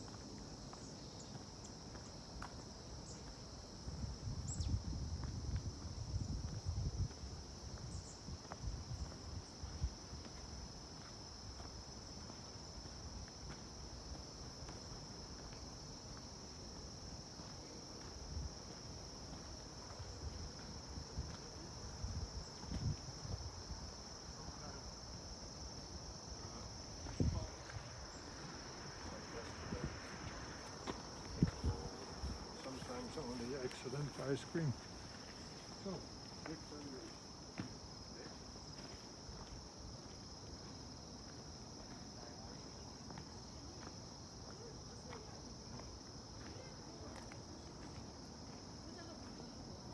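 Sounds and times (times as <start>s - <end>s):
insects chirring: 0.0s - 49.9s
wind rumble on microphone: 3.8s - 10.3s, 20.1s - 24.5s, 27.0s - 28.0s, 31.2s - 32.5s.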